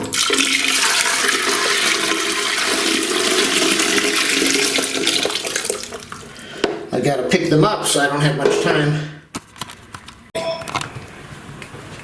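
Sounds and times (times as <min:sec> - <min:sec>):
water gushing out of tank: 0:00.0 - 0:06.4.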